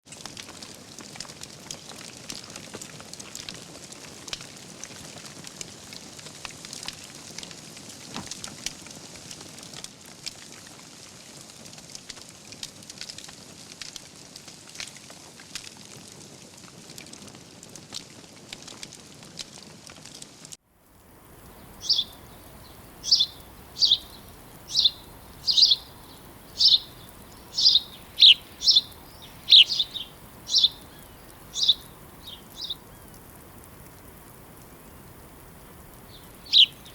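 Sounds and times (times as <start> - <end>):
soft steady hiss: 0.1 - 36.9
wood fire crackling: 0.1 - 36.9
bird chirping: 21.4 - 33.2, 35.8 - 36.9.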